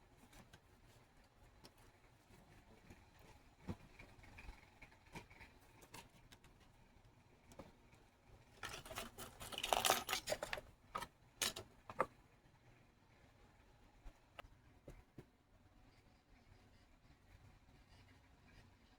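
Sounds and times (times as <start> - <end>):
rustling and scraping: 8.4 - 12.2
small objects clicking: 8.6 - 12.1.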